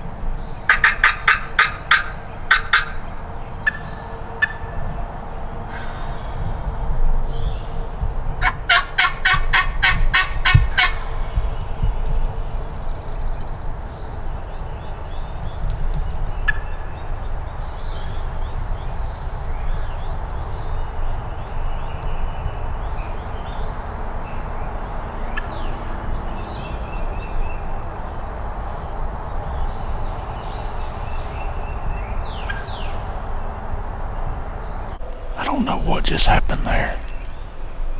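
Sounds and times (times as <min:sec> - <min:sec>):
wild turkey yelping: 0:00.7 - 0:02.9.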